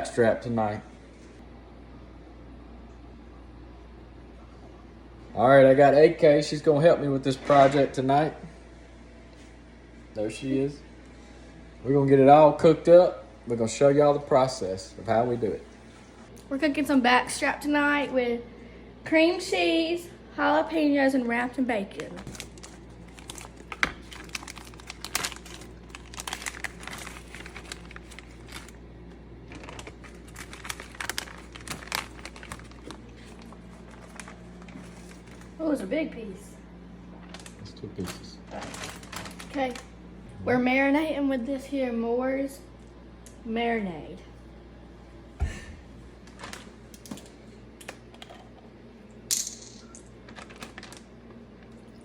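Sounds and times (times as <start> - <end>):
plastic packaging crinkling: 21.9 - 35.6, 37.1 - 40.0, 46.2 - 47.3, 49.9 - 51.9.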